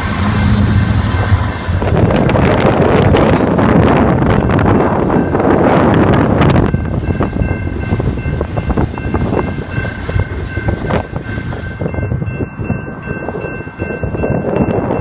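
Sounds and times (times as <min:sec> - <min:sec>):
high-pitched squeal: 0:00.0 - 0:03.8
freight train rumbling past: 0:00.0 - 0:15.0.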